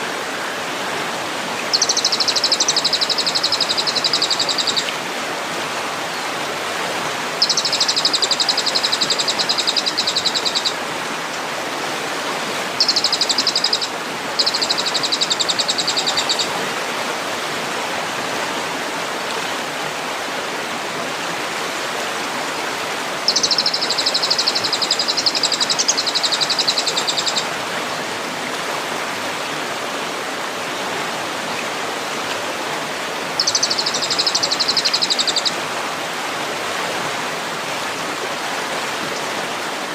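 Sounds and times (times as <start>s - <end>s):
bird trilling fast: 1.7s - 4.9s, 7.4s - 10.8s, 12.8s - 16.5s, 23.3s - 27.5s, 33.4s - 35.5s.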